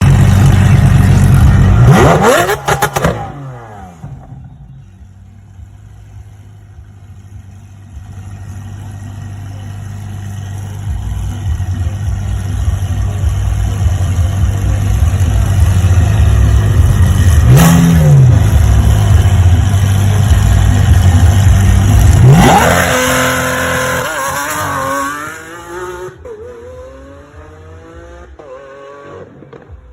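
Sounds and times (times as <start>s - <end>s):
sports car engine revving: 0.0s - 4.4s, 8.2s - 29.9s
car accelerating through upshifts: 1.8s - 4.0s.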